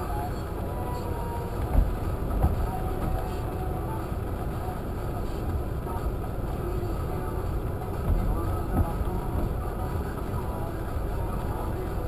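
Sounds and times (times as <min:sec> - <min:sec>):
car engine idling: 0:00.0 - 0:12.0
short thumps: 0:01.6 - 0:03.3, 0:08.0 - 0:09.6.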